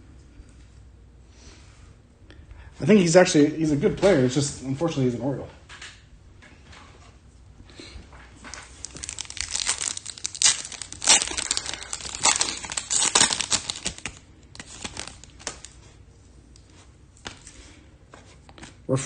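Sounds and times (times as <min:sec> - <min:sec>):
foil wrapper tearing and crinkling: 0:08.4 - 0:15.8.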